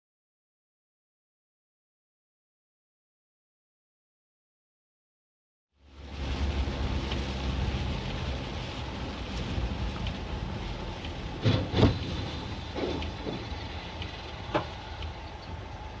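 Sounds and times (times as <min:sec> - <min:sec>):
car road and engine rumble: 0:05.8 - 0:16.0.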